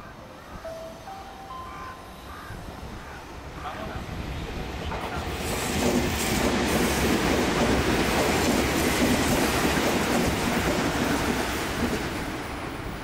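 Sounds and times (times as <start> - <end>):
train wheels rumbling on rails: 3.8 - 13.0.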